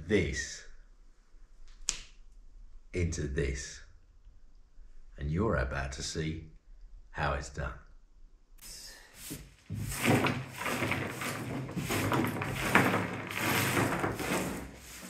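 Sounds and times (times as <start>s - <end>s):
plaster rubble scraping and crumbling: 9.7s - 15.0s.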